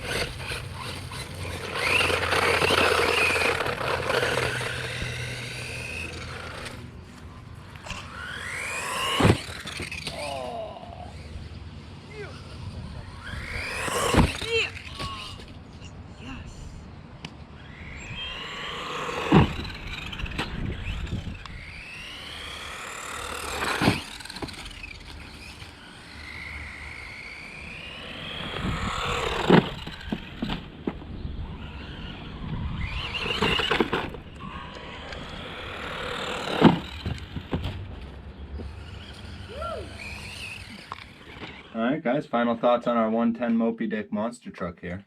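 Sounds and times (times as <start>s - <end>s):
toy truck electric motor whining: 0.0s - 42.0s
truck banging over bumps: 33.0s - 39.4s.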